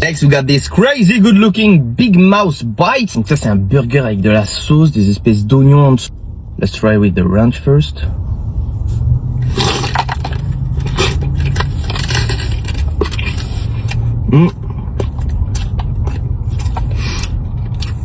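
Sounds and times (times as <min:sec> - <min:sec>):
steady low hum: 0:00.0 - 0:18.0
chewing and wet mouth noises: 0:09.4 - 0:18.0.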